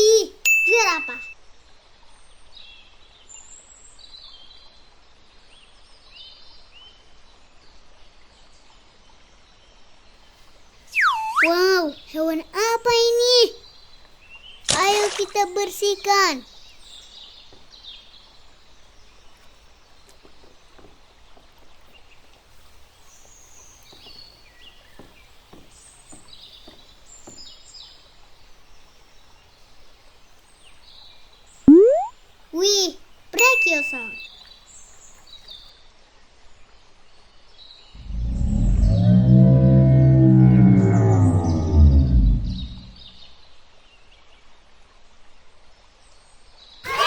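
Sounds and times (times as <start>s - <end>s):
birds chirping: 0.0s - 1.3s, 10.9s - 13.7s, 14.7s - 17.6s, 31.7s - 34.3s, 40.8s - 43.1s
faint outdoor hiss: 0.0s - 1.9s, 10.3s - 35.6s
high bird chirps: 10.9s - 12.2s, 31.7s - 34.3s.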